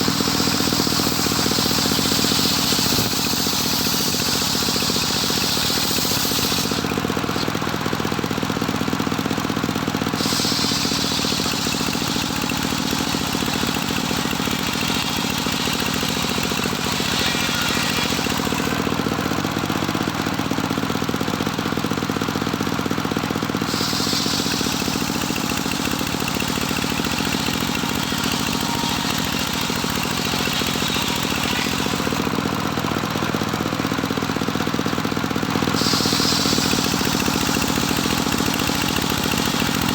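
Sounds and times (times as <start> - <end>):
saw high hiss: 0.0 - 6.9, 10.2 - 18.9, 23.6 - 32.2, 35.7 - 39.9
sawmill motor running: 0.0 - 39.9.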